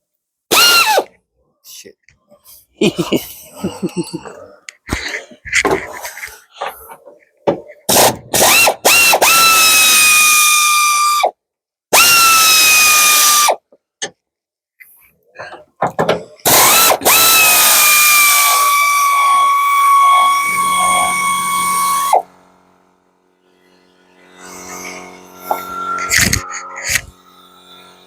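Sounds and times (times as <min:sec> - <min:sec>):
pneumatic wrench whining: 0:00.5 - 0:01.1, 0:03.4 - 0:11.3, 0:11.9 - 0:14.2, 0:15.4 - 0:22.5, 0:23.7 - 0:28.0.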